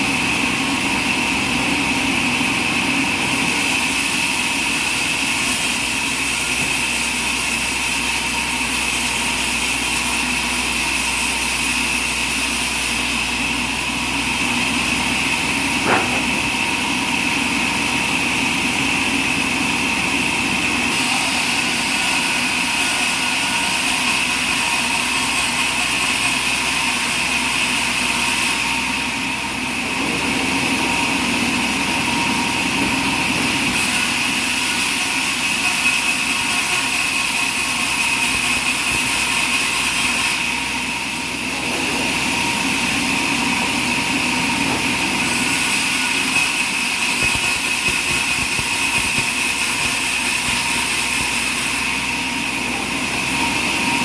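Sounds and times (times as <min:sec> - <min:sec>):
sawmill machinery whining: 0:00.0 - 0:54.0
hiss: 0:45.2 - 0:51.9.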